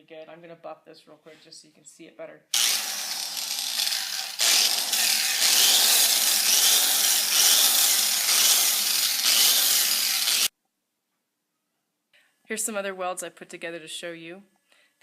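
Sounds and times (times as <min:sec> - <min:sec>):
power tool grinding steel: 0:02.6 - 0:10.5.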